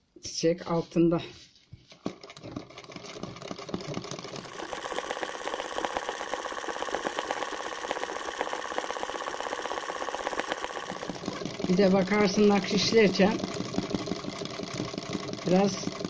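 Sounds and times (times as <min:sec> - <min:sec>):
sewing machine stitching: 0:02.0 - 0:16.0.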